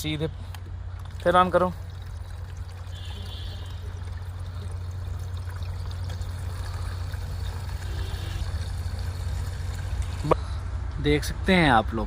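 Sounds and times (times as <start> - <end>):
liquid pouring into a bottle: 0.9 - 10.4.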